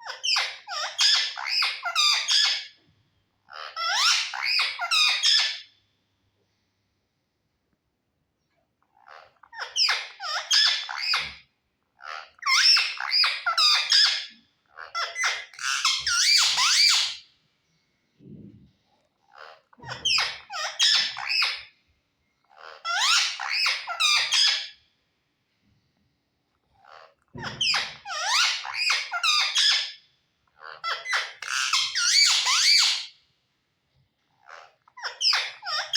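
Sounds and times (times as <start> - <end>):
parrot chattering and squawking: 0.0 - 2.8, 3.4 - 5.7, 8.8 - 17.3, 19.2 - 21.7, 22.5 - 24.8, 26.6 - 33.2, 34.3 - 35.9.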